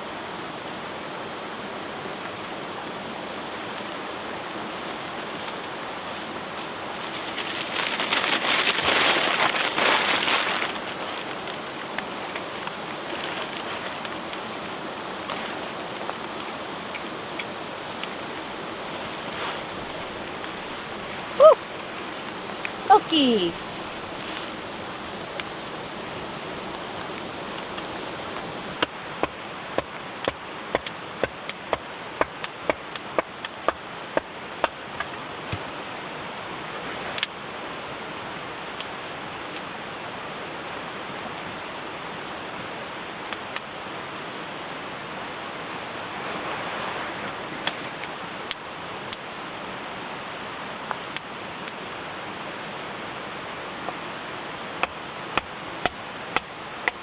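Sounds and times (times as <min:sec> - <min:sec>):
campfire crackling and popping: 0:01.8 - 0:36.5, 0:37.1 - 0:37.4, 0:42.9 - 0:44.4, 0:47.0 - 0:51.9, 0:54.7 - 0:57.0.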